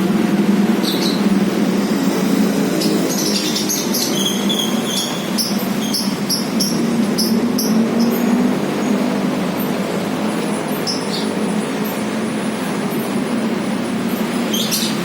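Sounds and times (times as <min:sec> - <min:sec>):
loud steady low hum: 0:00.0 - 0:15.0
lovebird chirping: 0:02.5 - 0:08.4.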